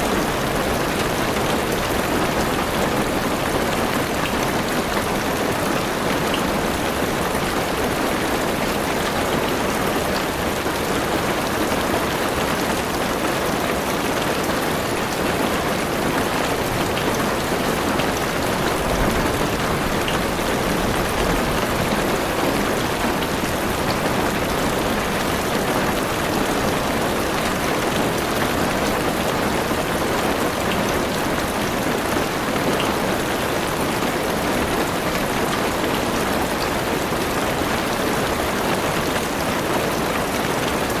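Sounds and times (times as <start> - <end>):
heavy rain on car roof: 0.0 - 41.0.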